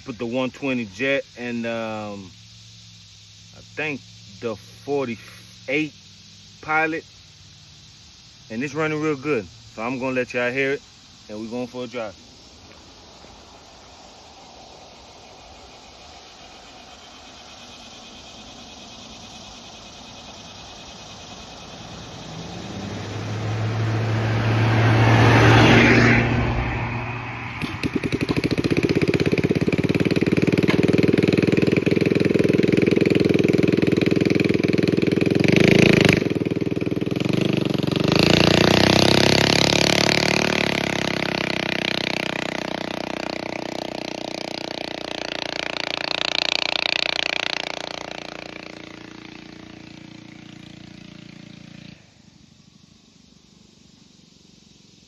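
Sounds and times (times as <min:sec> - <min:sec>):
man talking: 0:00.0 - 0:02.3, 0:03.6 - 0:05.9, 0:08.5 - 0:12.2
small engine revving: 0:03.5 - 0:54.3.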